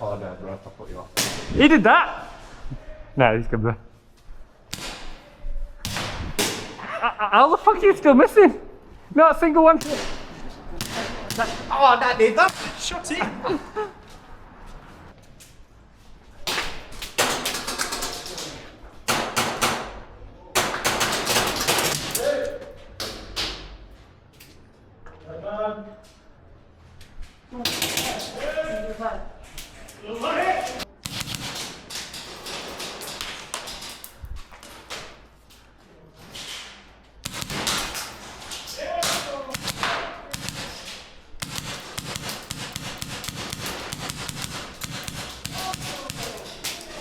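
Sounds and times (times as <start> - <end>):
airsoft guns firing: 4.7 - 6.9, 9.8 - 13.2, 20.6 - 22.2, 30.9 - 34.1, 37.2 - 47.0
sharp taps and clicks: 31.0 - 34.1, 37.2 - 38.2, 39.5 - 46.9.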